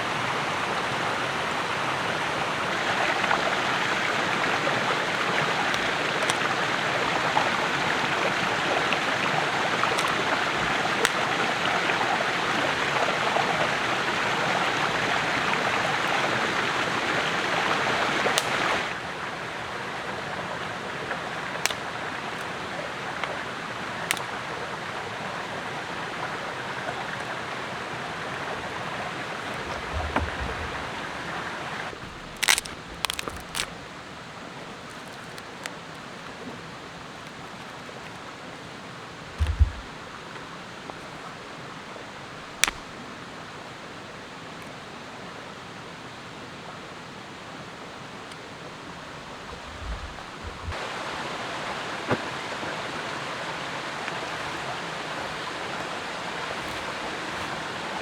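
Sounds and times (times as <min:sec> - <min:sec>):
faint clicks: 0:05.0 - 0:06.6, 0:08.8 - 0:11.6, 0:24.0 - 0:24.3, 0:42.5 - 0:43.0.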